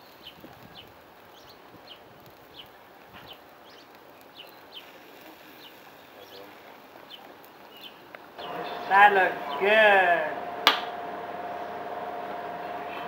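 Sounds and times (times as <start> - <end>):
faint outdoor background noise: 0.0 - 13.0
small bird chirping: 0.1 - 6.4, 7.0 - 8.1.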